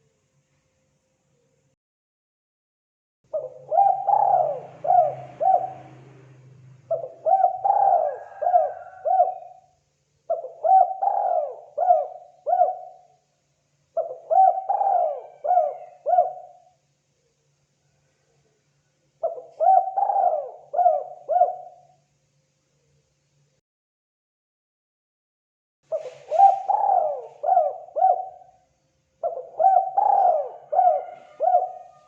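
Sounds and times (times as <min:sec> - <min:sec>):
dove cooing: 0:03.3 - 0:09.7, 0:10.3 - 0:13.2, 0:14.0 - 0:16.8, 0:19.2 - 0:22.0, 0:25.9 - 0:28.5, 0:29.2 - 0:32.0.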